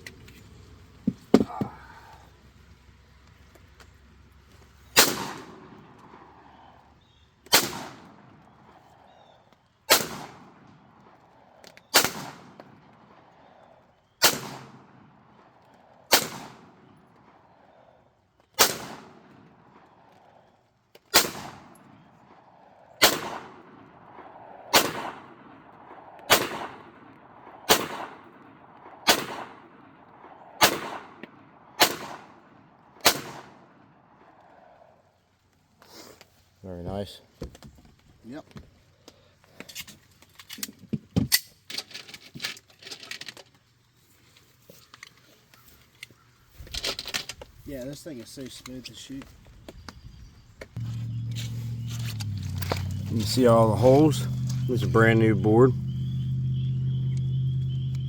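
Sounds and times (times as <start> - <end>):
pistol shots: 5.0 - 6.6, 7.5 - 8.4, 9.9 - 10.9, 11.9 - 13.3, 14.2 - 15.5, 16.1 - 17.4, 18.6 - 20.0, 21.1 - 34.1.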